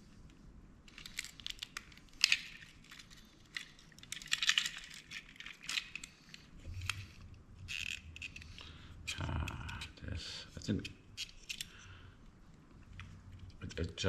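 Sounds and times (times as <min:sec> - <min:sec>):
plastic parts clicking and scraping: 0:00.9 - 0:10.0, 0:10.6 - 0:11.9.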